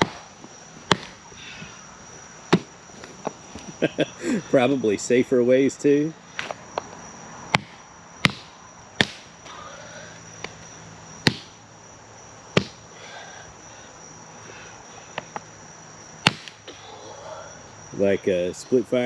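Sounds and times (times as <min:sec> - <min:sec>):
sharp knocks: 0:00.0 - 0:00.2, 0:00.9 - 0:01.2, 0:07.5 - 0:09.3, 0:11.2 - 0:11.6, 0:12.6 - 0:12.8, 0:16.2 - 0:16.6
high insect trill: 0:00.0 - 0:19.0.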